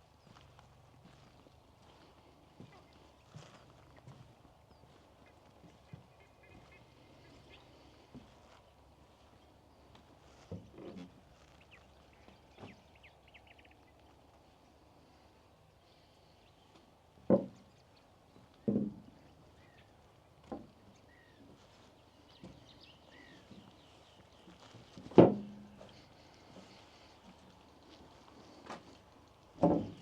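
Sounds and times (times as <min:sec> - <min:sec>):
footsteps on wooden boards: 0:00.1 - 0:12.9, 0:16.7 - 0:17.8, 0:18.4 - 0:30.0
faint bird chirps: 0:20.8 - 0:25.0.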